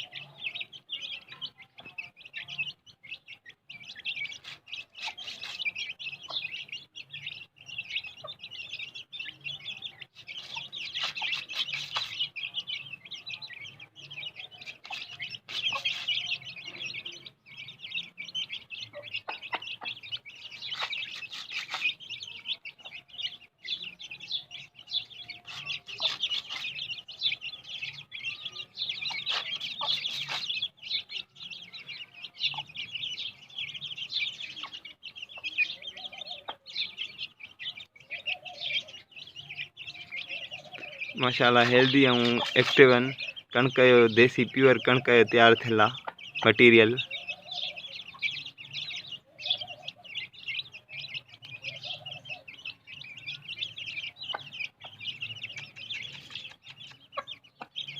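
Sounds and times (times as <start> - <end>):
chicks peeping: 0.0 - 57.9
hen clucking: 4.2 - 6.7, 10.2 - 12.3, 14.5 - 17.2, 18.6 - 23.0, 25.4 - 27.1, 28.9 - 30.7, 39.6 - 52.6, 53.8 - 57.9.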